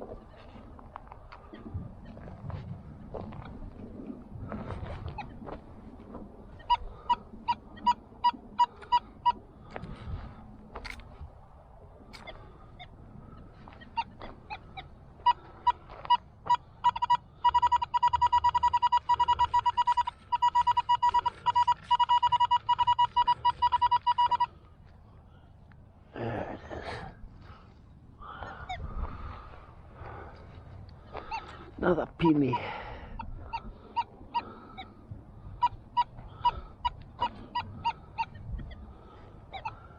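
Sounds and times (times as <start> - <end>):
metal detector beeping: 6.5 - 9.4, 13.7 - 24.5, 32.2 - 35.0, 35.6 - 38.8, 39.5 - 39.9.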